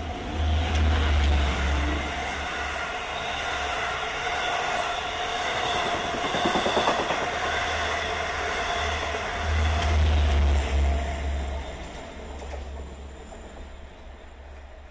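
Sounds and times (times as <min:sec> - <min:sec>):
train passing at speed: 0:00.0 - 0:14.9
wheel clatter over rail joints: 0:05.6 - 0:07.8.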